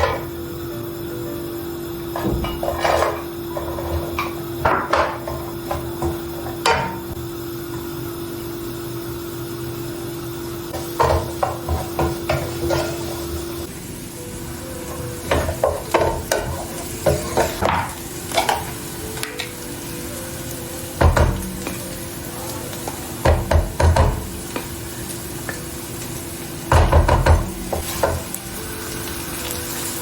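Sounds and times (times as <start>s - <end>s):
utensils clattering: 2.1s - 7.1s, 10.8s - 13.4s, 14.8s - 19.8s.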